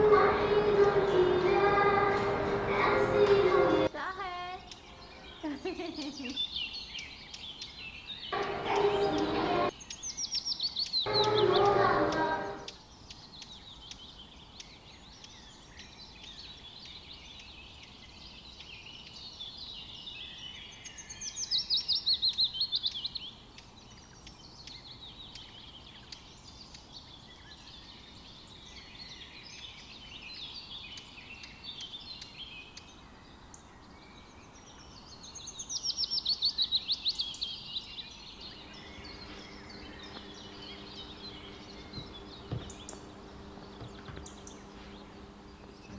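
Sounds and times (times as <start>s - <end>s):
loud full bursts: 0.0s - 3.9s, 8.3s - 9.7s, 11.1s - 12.7s, 38.5s - 45.9s
steady background hiss: 0.0s - 3.9s, 8.3s - 9.8s, 11.1s - 12.8s, 37.2s - 45.9s
songbirds trilling: 0.0s - 45.9s.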